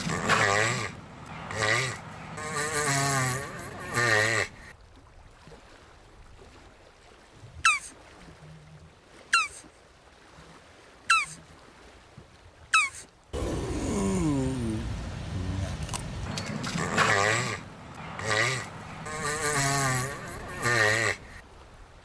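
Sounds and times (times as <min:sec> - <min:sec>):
animal calling: 0:00.0 - 0:04.7, 0:07.6 - 0:07.9, 0:09.3 - 0:09.7, 0:11.1 - 0:11.4, 0:12.7 - 0:21.4.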